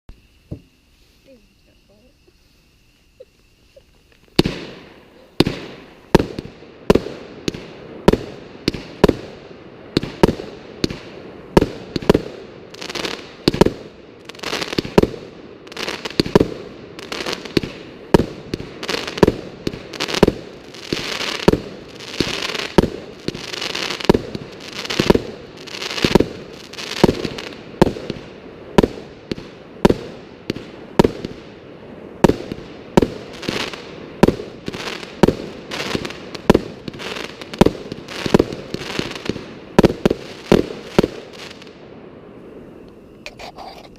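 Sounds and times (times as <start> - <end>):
firework hissing: 0.1 - 43.9.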